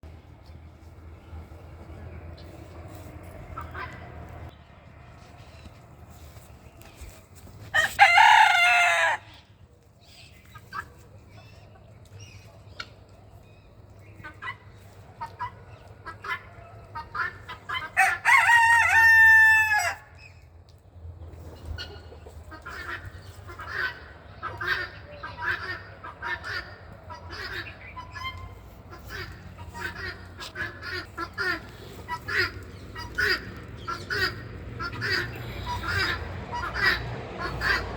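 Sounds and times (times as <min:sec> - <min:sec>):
rooster crowing: 0:07.8 - 0:09.3, 0:18.0 - 0:20.0
fowl calls and clucks: 0:10.2 - 0:13.2, 0:13.9 - 0:20.3, 0:21.3 - 0:37.9.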